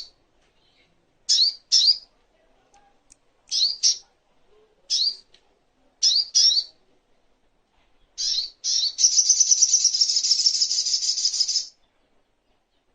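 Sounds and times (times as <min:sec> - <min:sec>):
bird fast high trill: 0:08.2 - 0:11.7
bird rising chirps: 0:08.2 - 0:11.7.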